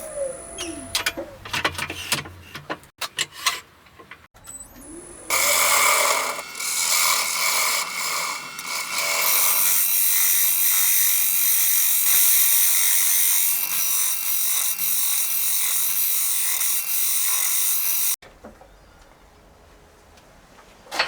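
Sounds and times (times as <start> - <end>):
lathe tool scraping wood: 5.3 - 18.2.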